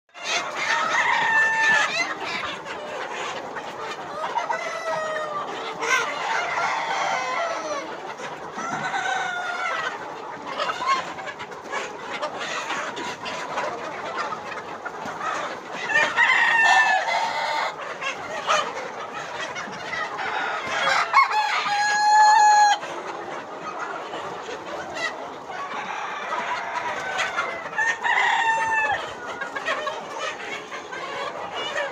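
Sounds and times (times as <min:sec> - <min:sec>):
chickens clucking: 0:00.1 - 0:31.9
roosters crowing: 0:00.2 - 0:02.2, 0:04.1 - 0:07.9, 0:08.5 - 0:09.8, 0:15.9 - 0:17.8, 0:20.1 - 0:22.8, 0:25.5 - 0:29.6.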